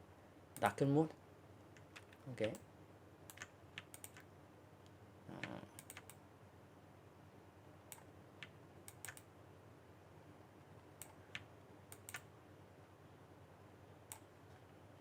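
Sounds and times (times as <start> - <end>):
mouse and keyboard clicks: 3.3 - 4.3, 5.4 - 6.2, 7.9 - 9.3, 11.0 - 12.3.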